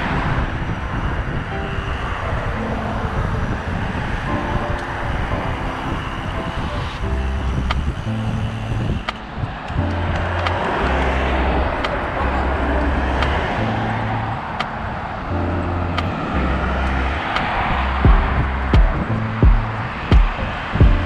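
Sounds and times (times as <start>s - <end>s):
traffic rush: 0.0s - 21.0s
slow bass line music: 7.0s - 9.1s, 9.7s - 14.4s, 15.3s - 21.0s.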